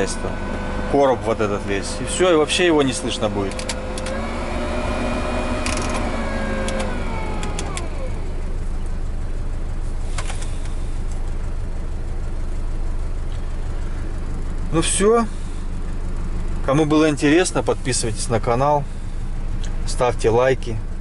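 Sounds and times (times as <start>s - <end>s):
heater blower motor whirring: 0.0s - 8.5s
engine idling rumble: 0.0s - 21.0s
sharp clicks: 5.6s - 7.9s.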